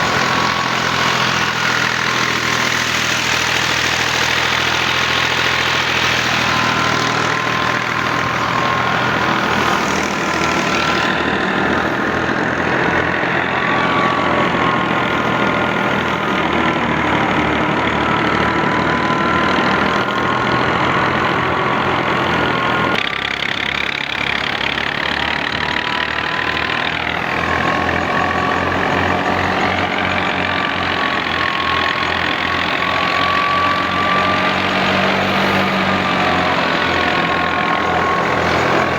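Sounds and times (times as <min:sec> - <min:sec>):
high machinery whine: 0:00.0 - 0:38.9
tractor diesel engine running: 0:00.0 - 0:38.9.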